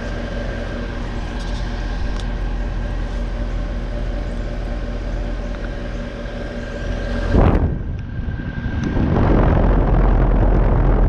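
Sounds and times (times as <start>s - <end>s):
heat pump unit humming: 0.0s - 11.0s.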